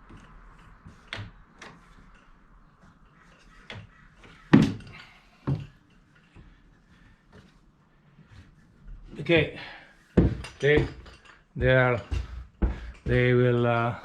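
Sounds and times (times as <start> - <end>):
window frame knocks and thumps: 3.6 - 5.8, 10.2 - 13.5.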